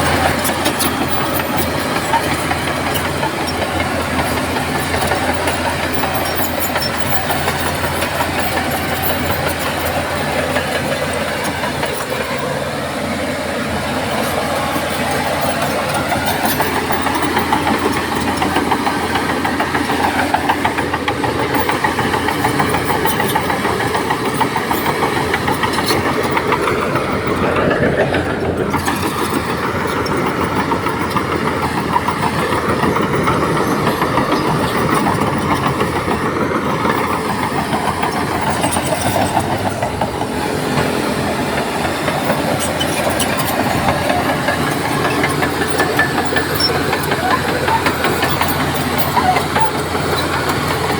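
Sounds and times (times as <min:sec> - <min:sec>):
heavy diesel engine under load: 0:00.0 - 0:50.9.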